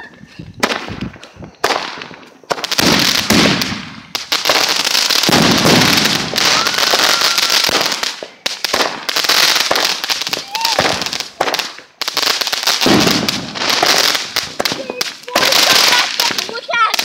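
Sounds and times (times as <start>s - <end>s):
fireworks crackling and popping: 0.0s - 17.0s
loud hiss: 0.3s - 17.0s.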